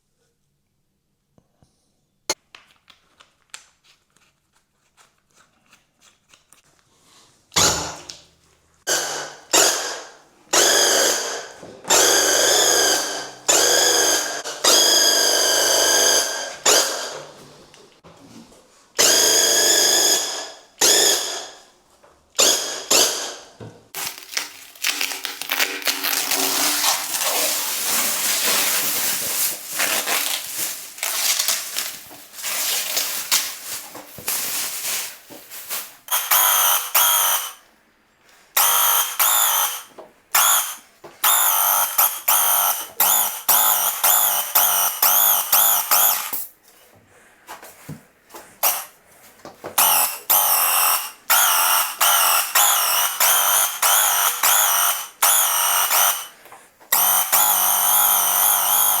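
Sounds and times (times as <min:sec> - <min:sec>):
paint sprayer pump whine: 0:24.0 - 0:33.0, 0:49.8 - 0:59.0
paint sprayer hissing: 0:24.0 - 0:37.5.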